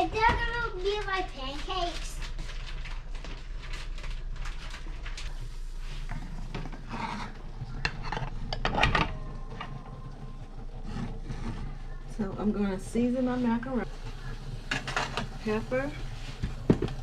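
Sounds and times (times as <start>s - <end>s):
pots and utensils clinking: 6.1s - 10.0s, 13.6s - 17.0s.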